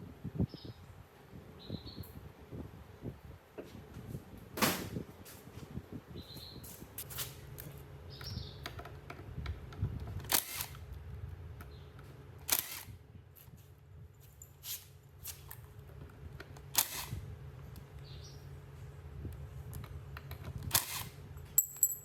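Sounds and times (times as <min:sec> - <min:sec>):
low steady hum: 0:00.0 - 0:22.0
metal tools clicking and knocking: 0:21.4 - 0:22.0.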